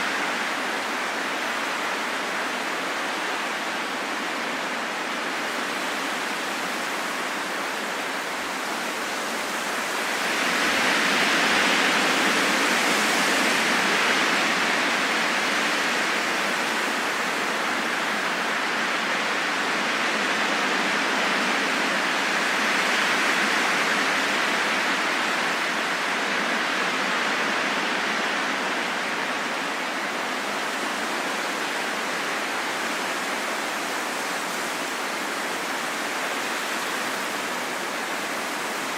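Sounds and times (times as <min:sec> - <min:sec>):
rushing wind: 0:00.0 - 0:38.9.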